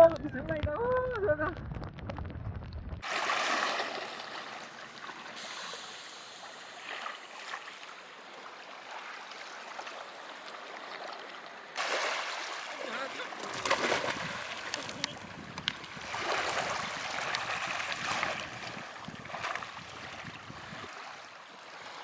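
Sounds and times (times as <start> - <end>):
water hissing around canoe: 3.0 - 8.0, 11.8 - 13.1, 16.2 - 19.2
faint water splashes: 3.0 - 22.0.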